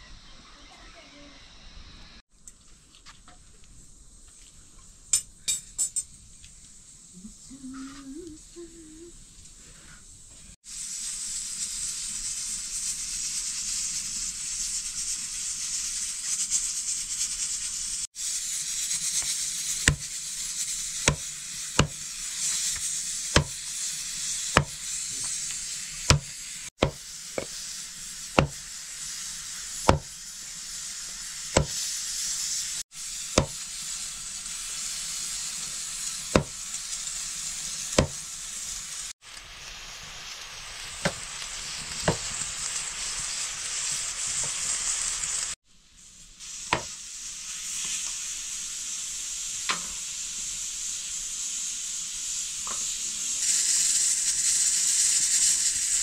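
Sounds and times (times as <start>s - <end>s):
food sizzling in hot oil: 0.2s - 56.0s
sharp knocks: 26.1s - 27.0s, 29.9s - 30.1s.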